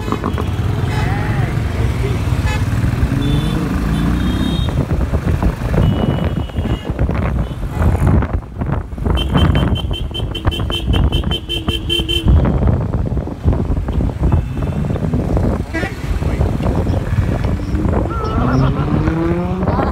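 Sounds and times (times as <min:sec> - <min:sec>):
road traffic noise: 0:00.0 - 0:19.9
vehicle horn beeping: 0:05.8 - 0:06.9, 0:18.1 - 0:18.6.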